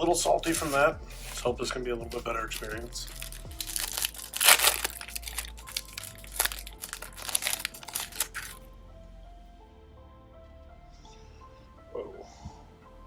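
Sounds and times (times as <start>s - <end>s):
faint background music: 0.0s - 13.0s
plastic wrapping tearing and crinkling: 0.4s - 1.5s, 2.4s - 8.6s.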